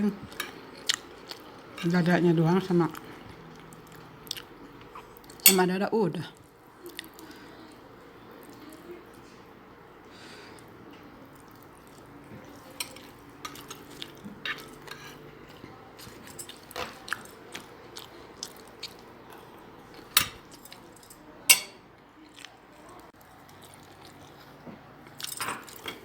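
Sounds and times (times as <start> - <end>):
person chewing food: 0.3 - 1.8, 2.9 - 5.4, 10.6 - 20.8, 23.2 - 25.8.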